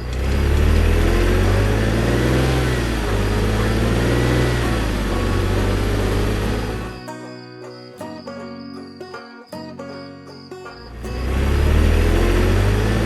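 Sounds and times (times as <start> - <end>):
heavy vehicle engine revving: 0.0 - 7.0, 10.9 - 13.0.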